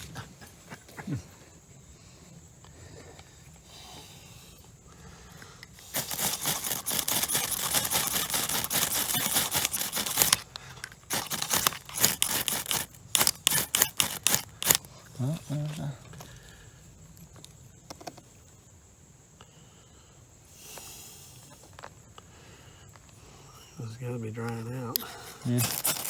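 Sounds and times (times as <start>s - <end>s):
tinder scraping and crackling: 4.9s - 17.6s, 22.9s - 26.0s.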